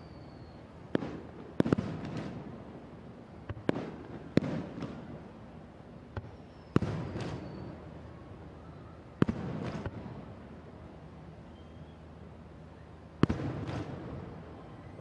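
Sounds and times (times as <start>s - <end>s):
faint thin whistle: 0.0s - 0.7s, 6.2s - 7.8s, 8.5s - 9.1s, 11.4s - 12.1s
fireworks bursting with crackling: 0.0s - 2.6s, 3.4s - 5.2s, 6.2s - 7.8s, 9.2s - 10.1s, 13.2s - 14.5s.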